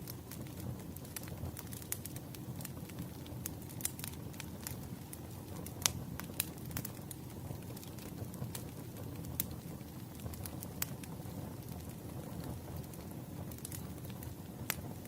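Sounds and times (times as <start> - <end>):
fire crackling and popping: 0.0 - 15.0
wood fire rumbling: 0.0 - 15.0.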